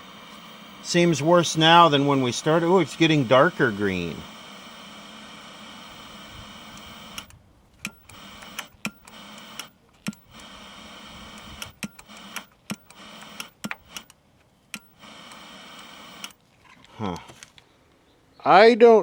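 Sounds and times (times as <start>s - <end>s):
television hiss: 0.0s - 7.3s
sharp clicks: 0.0s - 16.4s.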